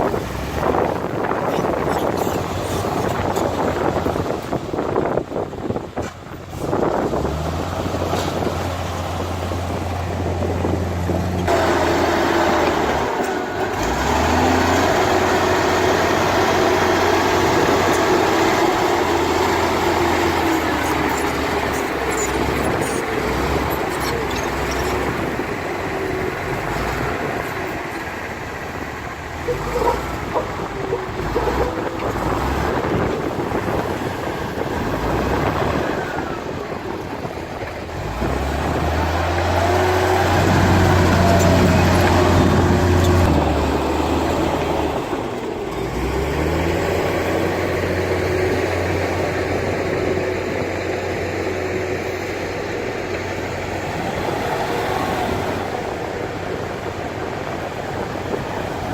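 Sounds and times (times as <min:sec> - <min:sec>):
diesel earthmoving machinery: 0:00.0 - 0:58.9.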